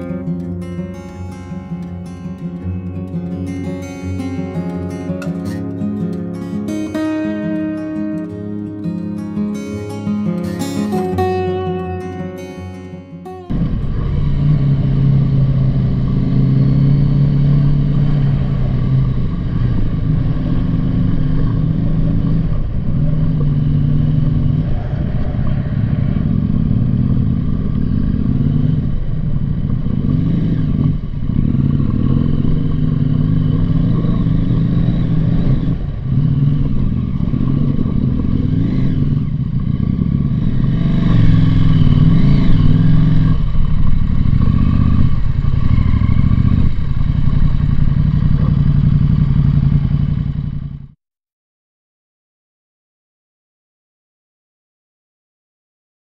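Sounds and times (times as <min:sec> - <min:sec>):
motorcycle engine running: 0:00.0 - 0:51.0
road noise: 0:00.0 - 0:51.0
wind noise: 0:13.5 - 0:48.5.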